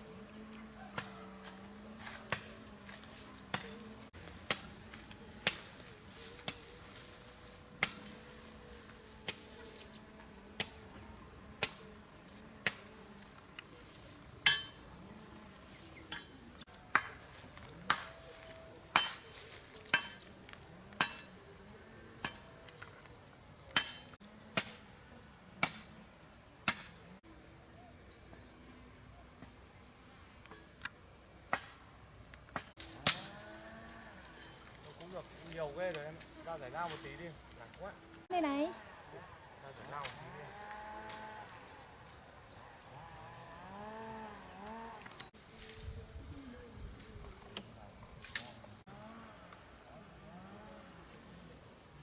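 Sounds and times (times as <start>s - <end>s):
high-pitched insect drone: 0.0s - 16.7s
firewood being chopped: 0.9s - 11.9s, 12.6s - 15.1s, 16.1s - 21.4s, 23.7s - 24.8s, 26.7s - 27.0s, 31.5s - 31.8s, 32.5s - 33.3s.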